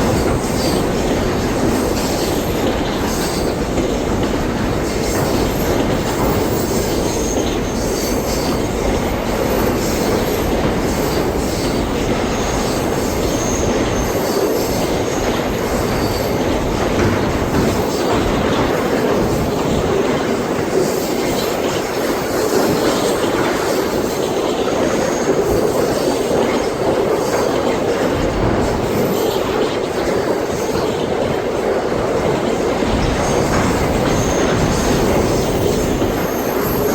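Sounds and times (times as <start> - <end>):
train wheels clattering over track: 0.0 - 36.9
wheel squeal: 9.5 - 16.5, 32.9 - 36.9.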